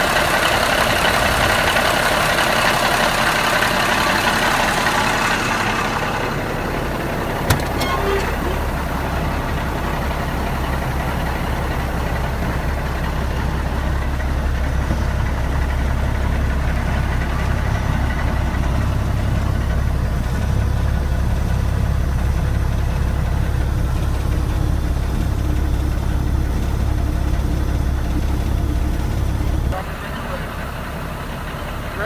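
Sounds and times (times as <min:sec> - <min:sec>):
truck engine idling: 0:00.0 - 0:32.0.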